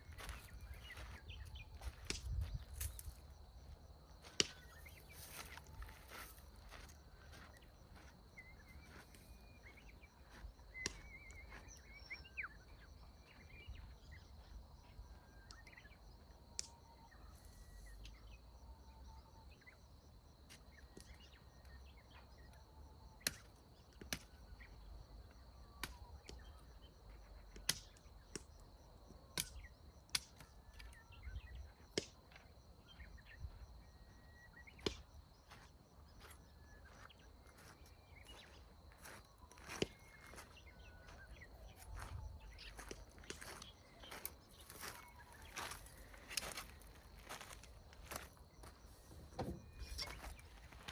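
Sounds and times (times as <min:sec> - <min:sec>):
bird chirps: 0:00.0 - 0:03.1, 0:04.2 - 0:19.9, 0:32.8 - 0:50.9.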